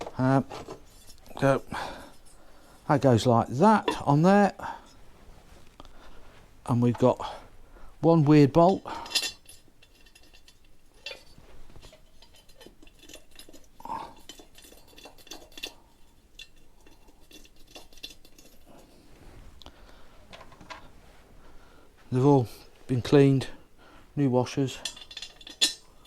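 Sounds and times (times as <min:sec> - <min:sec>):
metal bolts and washers clinking: 0:00.0 - 0:02.4, 0:03.0 - 0:04.4, 0:08.1 - 0:18.9, 0:24.4 - 0:26.0.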